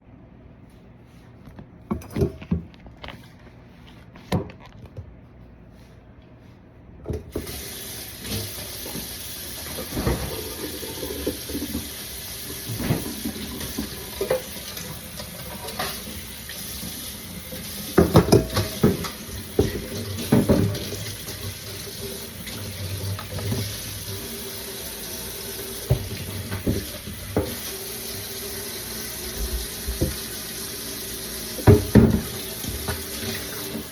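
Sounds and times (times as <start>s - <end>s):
water running into sink: 7.3s - 33.9s.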